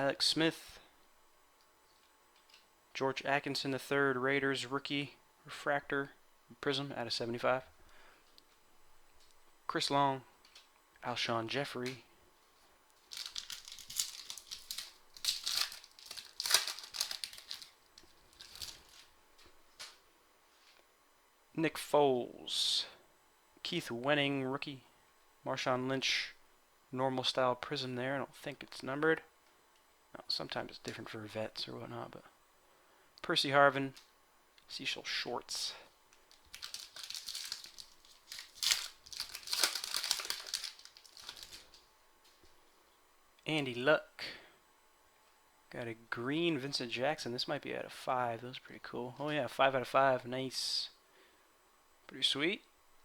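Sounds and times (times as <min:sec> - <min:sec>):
cards being handled: 0:13.0 - 0:19.1, 0:36.1 - 0:41.8
foil wrapper crinkling: 0:13.0 - 0:19.2, 0:36.1 - 0:41.9.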